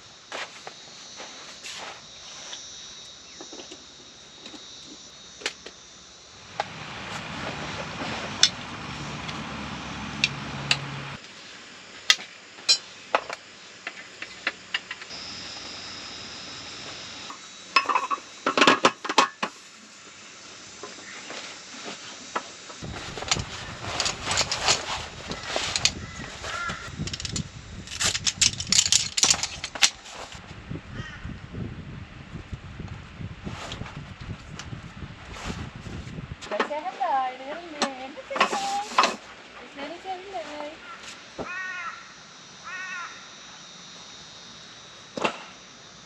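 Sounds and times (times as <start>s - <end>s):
background hiss: 0.0s - 30.8s.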